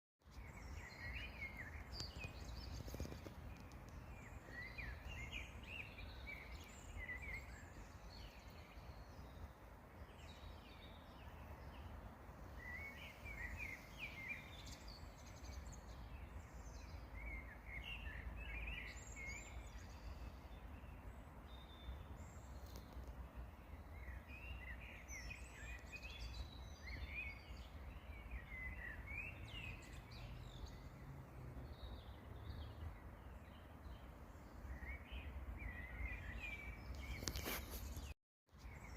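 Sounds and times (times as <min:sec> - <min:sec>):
birds twittering: 0:00.2 - 0:38.9.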